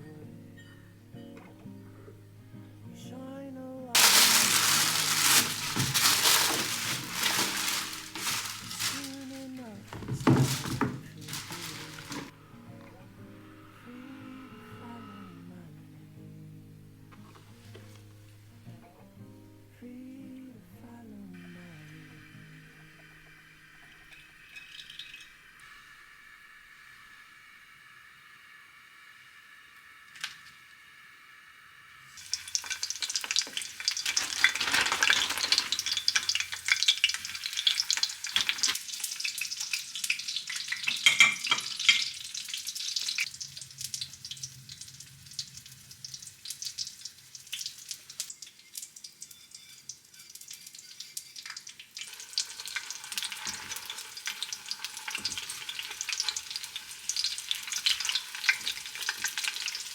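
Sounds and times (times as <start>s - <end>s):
food sizzling in hot oil: 3.9s - 12.4s, 21.4s - 59.9s.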